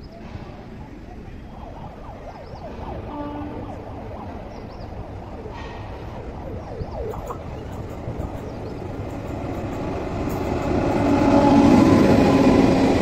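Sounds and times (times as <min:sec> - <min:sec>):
electric train rumble: 0:02.7 - 0:13.0.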